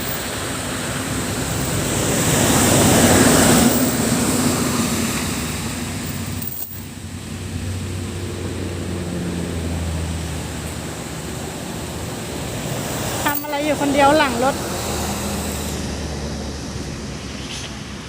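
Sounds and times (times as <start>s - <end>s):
low engine hum: 0.0s - 18.0s
vehicle passing on road: 0.0s - 18.0s.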